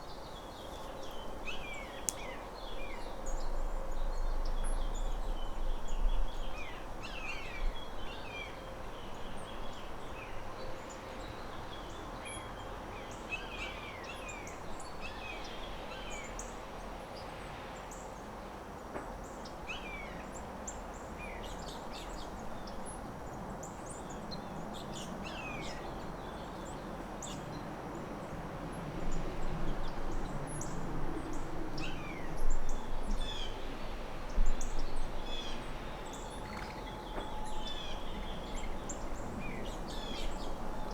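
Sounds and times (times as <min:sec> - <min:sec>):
steady background hiss: 0:12.7 - 0:40.9
birds chirping: 0:34.7 - 0:40.9.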